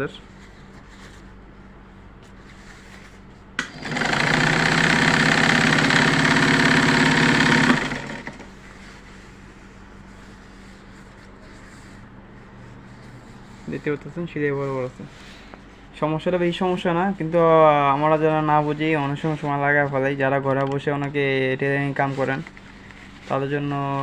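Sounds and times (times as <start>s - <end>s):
sewing machine running: 3.6s - 8.5s.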